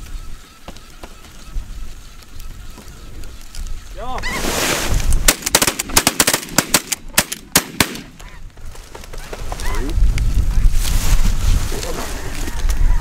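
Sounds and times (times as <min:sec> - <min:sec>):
shotgun shots: 0:05.2 - 0:08.2.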